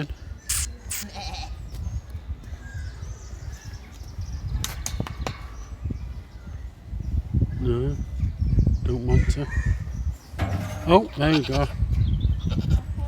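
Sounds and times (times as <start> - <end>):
sharp clicks: 0.5 - 1.0
faint short chirps: 0.5 - 1.1.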